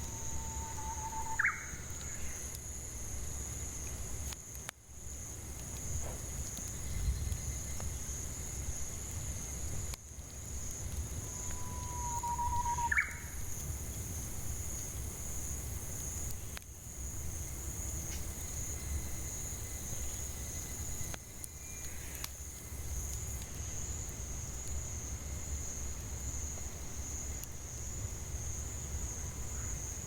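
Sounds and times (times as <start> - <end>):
cicadas droning: 0.0 - 30.0
bird whistled call: 0.4 - 1.7, 11.4 - 13.3.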